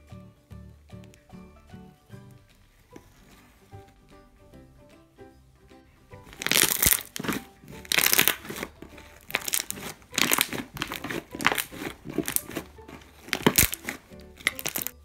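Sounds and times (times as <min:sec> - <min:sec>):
wet slime squishing: 0:06.3 - 0:15.0.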